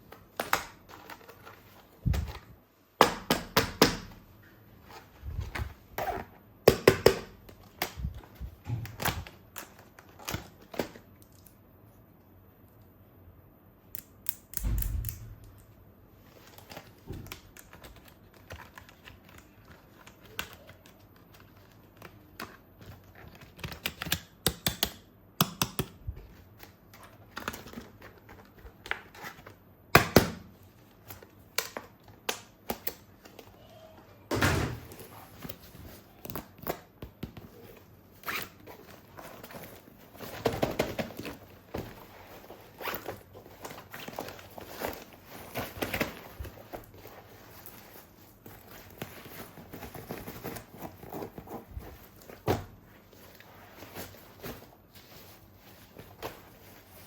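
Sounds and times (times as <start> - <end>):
packaging rustling: 34.8 - 57.0.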